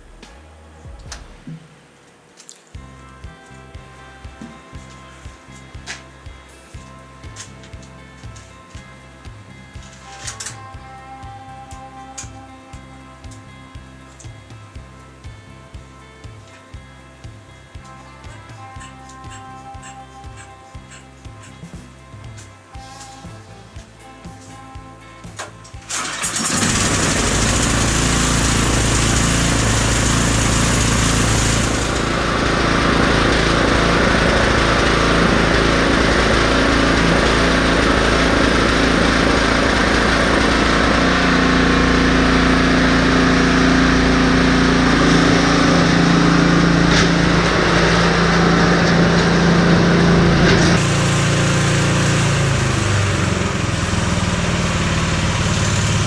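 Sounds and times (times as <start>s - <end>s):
snowblower engine running: 25.3s - 56.0s.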